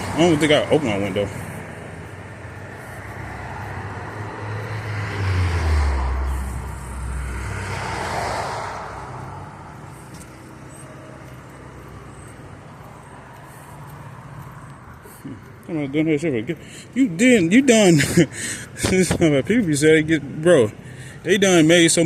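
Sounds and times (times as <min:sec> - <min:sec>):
street background noise: 0:00.0 - 0:22.0
vehicle driving past: 0:01.3 - 0:15.1.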